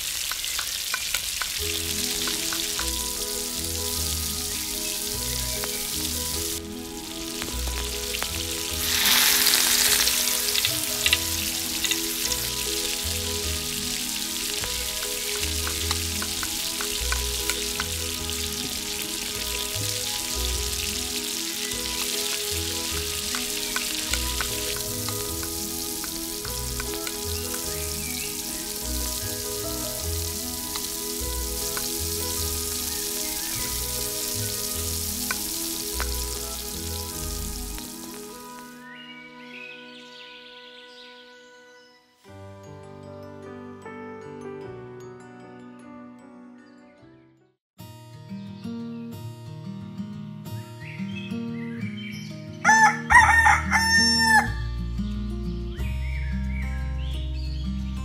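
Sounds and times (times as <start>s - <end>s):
food sizzling in oil: 0.0s - 39.1s
small clicks and taps: 0.2s - 1.6s.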